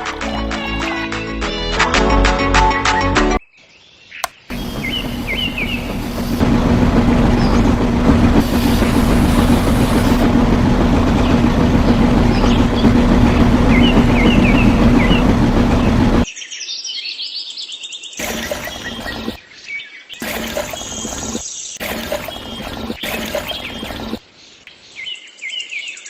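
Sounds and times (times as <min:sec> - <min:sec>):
birds chirping: 0:04.1 - 0:16.3, 0:18.2 - 0:19.5, 0:20.2 - 0:24.2
small engine running: 0:04.5 - 0:16.3, 0:18.2 - 0:19.4, 0:20.2 - 0:24.2.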